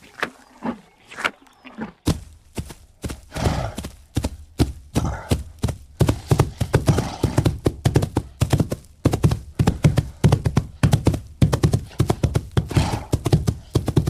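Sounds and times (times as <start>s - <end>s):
rhinoceros cropping and chewing grass: 0.0s - 3.9s.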